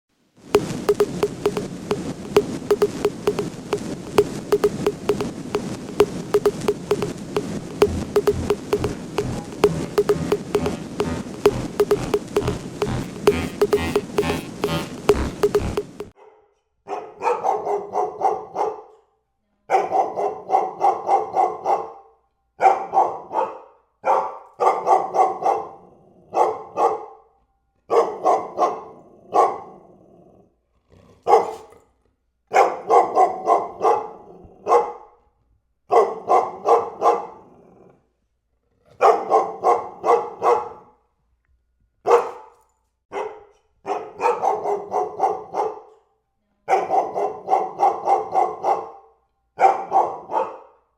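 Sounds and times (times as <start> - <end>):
dog barking: 16.2 - 18.8, 31.3 - 31.6, 35.9 - 37.4, 39.0 - 40.8, 42.1 - 42.5, 43.1 - 46.0, 46.7 - 50.7.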